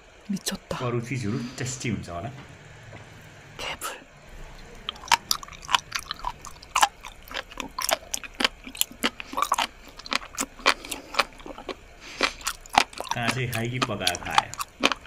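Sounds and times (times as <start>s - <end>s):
close chewing mouth clicks and smacks: 4.8s - 15.0s.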